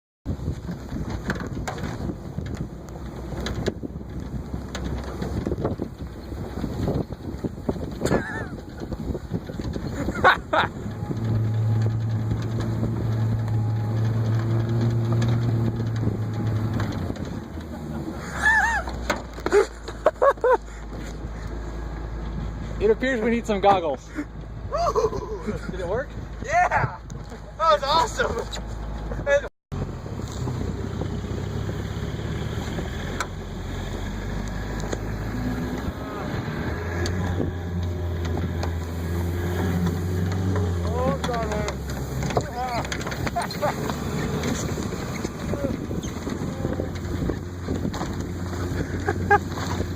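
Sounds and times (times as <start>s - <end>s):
truck engine droning: 0.3s - 49.9s.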